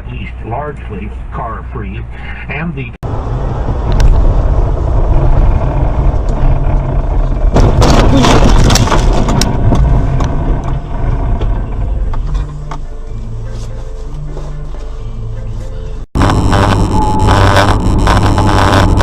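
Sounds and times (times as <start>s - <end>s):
heavy vehicle engine drone: 0.0s - 19.0s
crunching and clattering: 6.3s - 12.6s.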